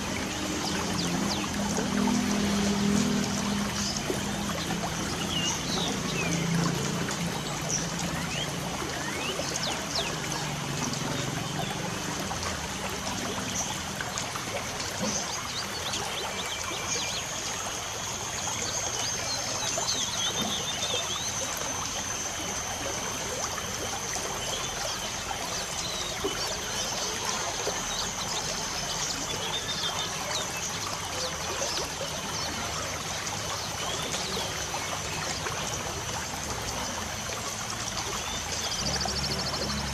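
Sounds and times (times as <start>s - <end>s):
birds chirping: 0.0s - 13.9s.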